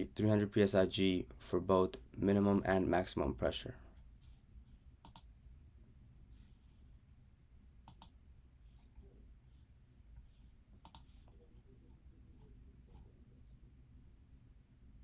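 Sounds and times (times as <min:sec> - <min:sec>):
sharp clicks: 0:05.0 - 0:05.3, 0:07.8 - 0:08.2, 0:10.8 - 0:11.1.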